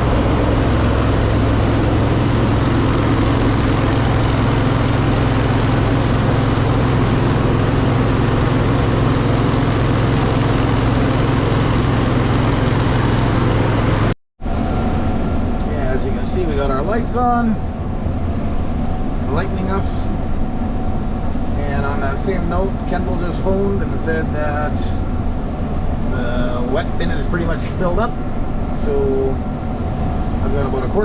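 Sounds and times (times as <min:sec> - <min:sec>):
grain machinery droning: 0:00.0 - 0:14.1, 0:21.4 - 0:31.0.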